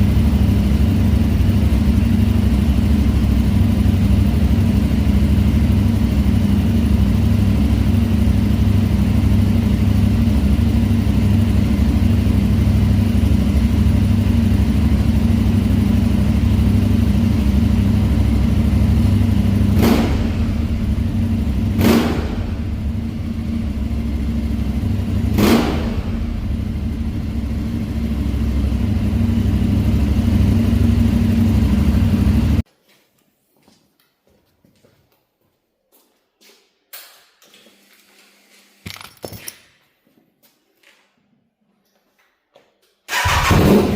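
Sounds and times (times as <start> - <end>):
motorcycle engine running: 0.0 - 32.6, 43.1 - 43.9
sharp exhaust cracks: 6.8 - 32.6.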